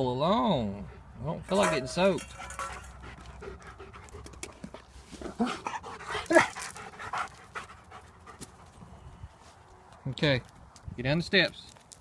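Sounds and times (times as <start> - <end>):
small dogs panting: 0.8 - 8.9.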